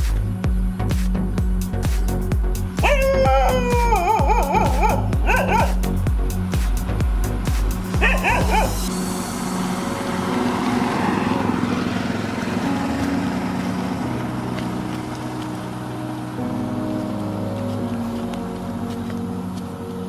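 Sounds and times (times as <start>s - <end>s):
music beat: 0.0s - 11.2s
steady drone with held tones: 0.0s - 20.0s
dog yipping and whimpering: 2.8s - 5.8s, 8.0s - 8.8s.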